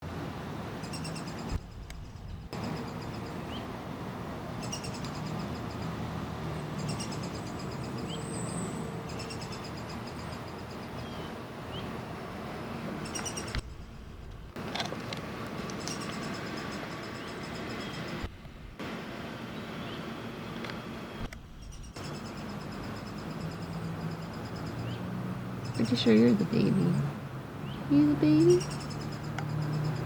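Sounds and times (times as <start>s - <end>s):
woodpecker calling: 0.8s - 3.7s, 4.6s - 6.0s, 6.6s - 11.9s, 13.0s - 14.0s, 15.7s - 18.2s, 21.5s - 30.0s.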